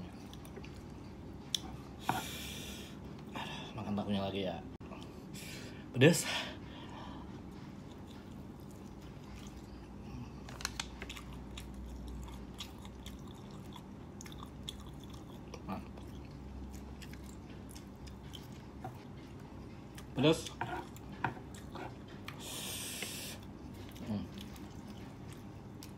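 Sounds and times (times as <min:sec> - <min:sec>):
steady low hum: 0:00.0 - 0:25.9
person chewing crunchy food: 0:07.4 - 0:25.9.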